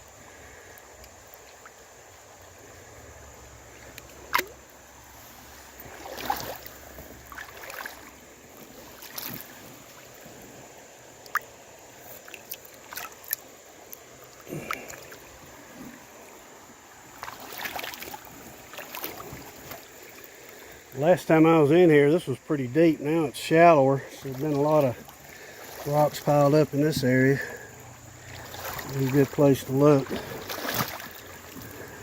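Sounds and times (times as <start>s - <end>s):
stream rushing: 0.0s - 32.0s
water splashing around legs: 3.6s - 20.8s, 24.0s - 32.0s.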